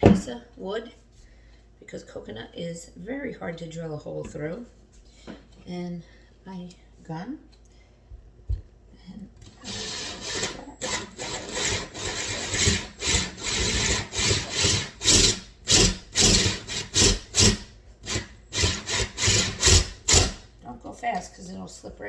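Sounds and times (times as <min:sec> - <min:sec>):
tool rasping coconut shell: 0:09.4 - 0:20.5.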